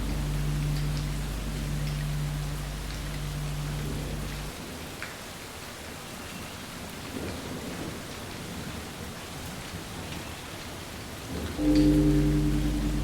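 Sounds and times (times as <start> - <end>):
sustained ringing tone: 0.0 - 4.5, 11.6 - 13.0
steady rain falling: 0.0 - 13.0.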